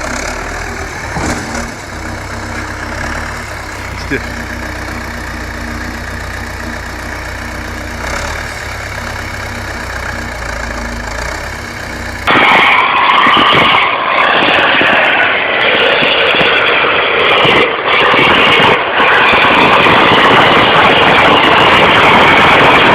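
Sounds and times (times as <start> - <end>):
vehicle engine running: 0.0 - 13.1.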